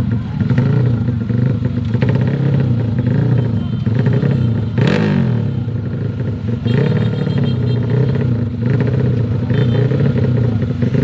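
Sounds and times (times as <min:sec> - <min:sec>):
motorcycle engine revving high: 0:00.0 - 0:11.0.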